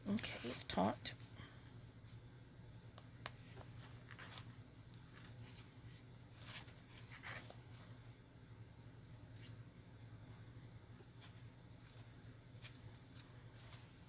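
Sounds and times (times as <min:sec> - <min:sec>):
low steady hum: 0:00.0 - 0:14.0
pages being handled: 0:03.2 - 0:08.0, 0:11.2 - 0:14.0.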